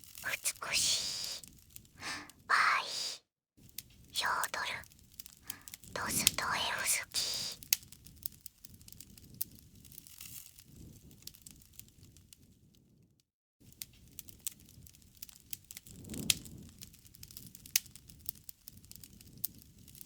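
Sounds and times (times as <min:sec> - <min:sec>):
campfire crackling and popping: 0:04.8 - 0:12.3, 0:13.7 - 0:20.0
low rush of flame: 0:14.0 - 0:20.0.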